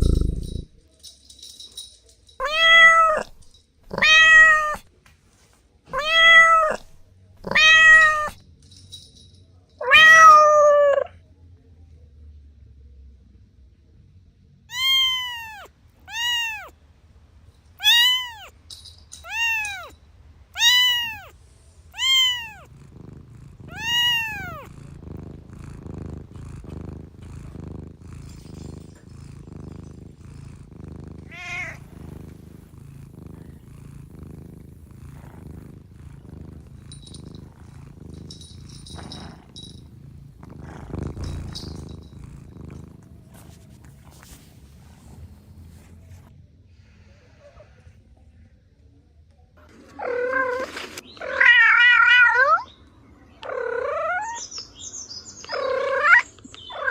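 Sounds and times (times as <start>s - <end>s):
cat purring: 0.0s - 4.9s, 5.9s - 8.4s, 20.5s - 48.0s, 53.4s - 54.4s
cat meowing: 2.4s - 4.9s, 5.9s - 8.4s, 9.8s - 11.2s, 14.7s - 16.7s, 17.8s - 18.5s, 19.2s - 19.9s, 20.5s - 24.7s, 31.2s - 32.2s.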